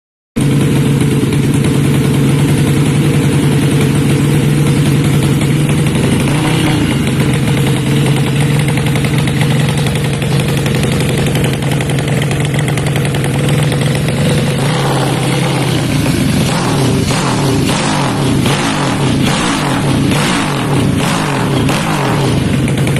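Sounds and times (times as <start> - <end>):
motorcycle engine running: 0.4 - 22.9.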